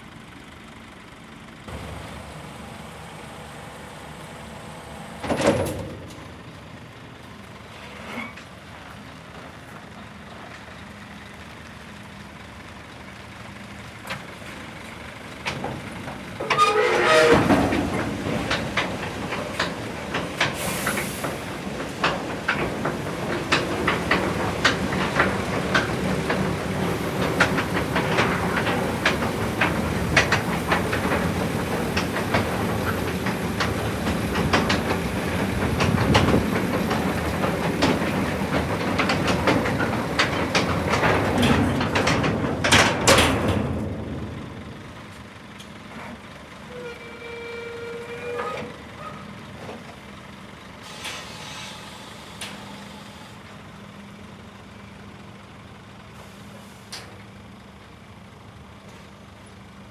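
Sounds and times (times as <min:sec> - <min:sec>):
heavy truck running: 0:00.0 - 0:59.9
metallic clanks and rattles: 0:15.4 - 0:45.3.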